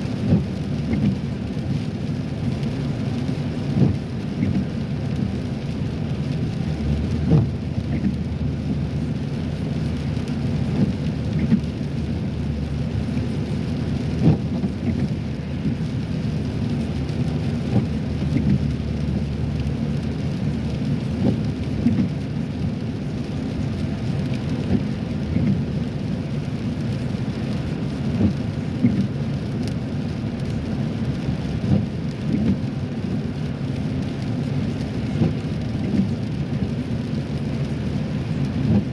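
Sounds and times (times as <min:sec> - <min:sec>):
rain on a car: 0:00.0 - 0:38.9
tyre and road rumble: 0:02.4 - 0:38.9.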